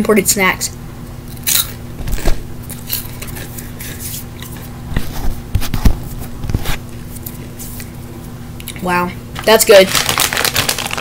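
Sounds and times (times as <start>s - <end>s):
crunching and chewing snacks: 1.3s - 1.8s, 2.7s - 3.4s, 9.7s - 11.0s.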